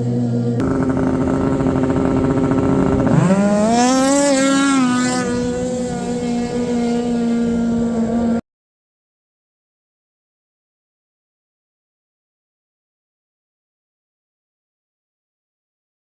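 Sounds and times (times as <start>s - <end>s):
snowmobile engine revving: 0.6s - 8.4s.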